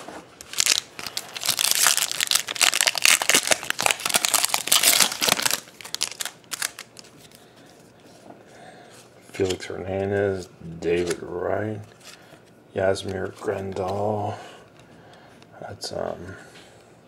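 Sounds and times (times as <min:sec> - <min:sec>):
wrapper tearing and crinkling: 0:00.4 - 0:07.1.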